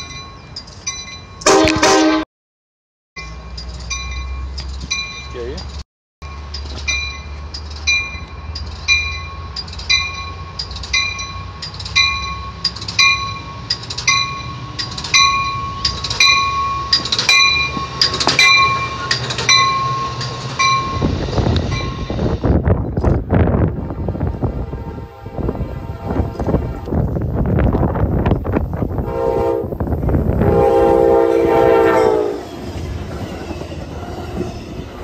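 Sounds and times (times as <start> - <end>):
passenger train rumbling: 3.2 - 35.0
wind buffeting microphone: 20.7 - 35.0.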